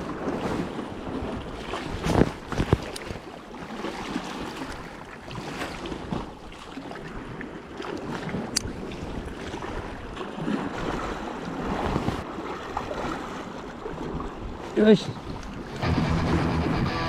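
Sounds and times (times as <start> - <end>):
wind on microphone: 0.0 - 3.2, 8.1 - 12.3
sea water sloshing among blocks: 0.0 - 15.8.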